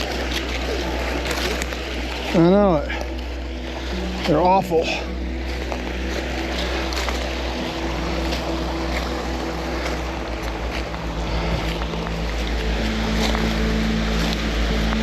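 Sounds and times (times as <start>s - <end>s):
creek rushing: 0.0s - 15.0s
wind rumble on microphone: 3.0s - 15.0s.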